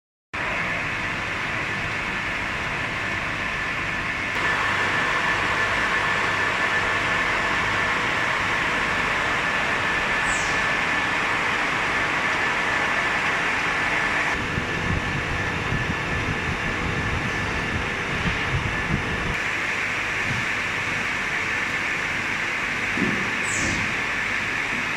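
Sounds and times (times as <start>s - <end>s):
foam cutting machine humming: 0.4s - 24.9s
heavy low rumble: 2.8s - 19.4s.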